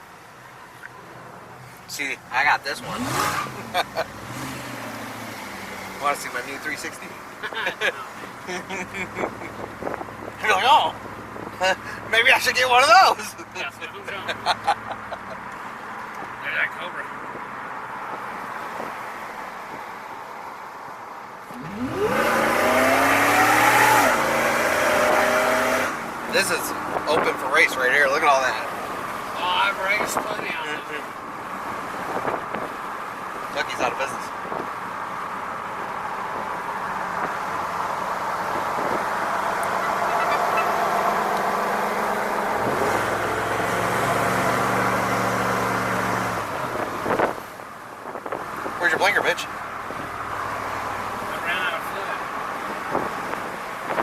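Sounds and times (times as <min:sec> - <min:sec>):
vehicle road noise: 0:00.0 - 0:54.0
engine revving: 0:02.7 - 0:06.7, 0:21.5 - 0:28.1, 0:38.5 - 0:47.4
tyre and wind noise: 0:08.9 - 0:11.6, 0:32.0 - 0:32.8, 0:46.2 - 0:48.8, 0:52.6 - 0:54.0.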